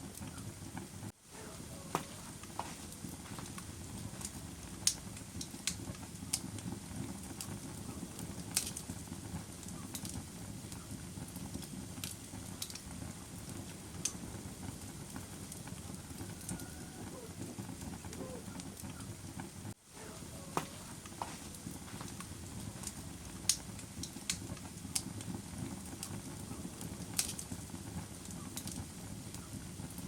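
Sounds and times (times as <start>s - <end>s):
fire crackling: 0.0s - 30.0s.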